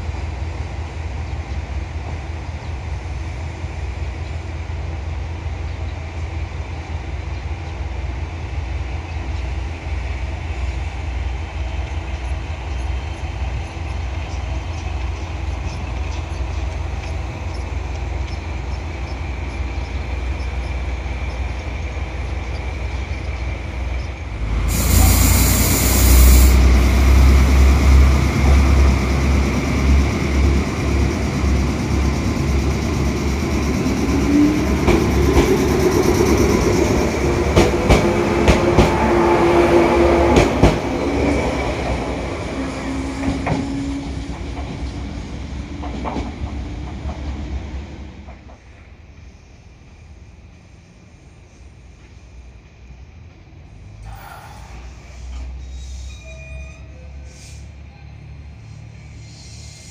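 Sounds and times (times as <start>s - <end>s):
train rumbling: 0.0s - 59.9s
loud air hiss: 24.6s - 27.6s, 58.7s - 59.9s.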